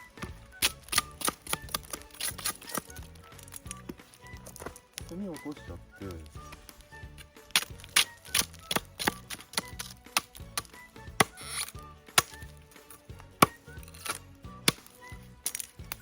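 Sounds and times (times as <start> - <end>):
chopping knocks on a log: 12.1 - 12.5, 13.4 - 14.9.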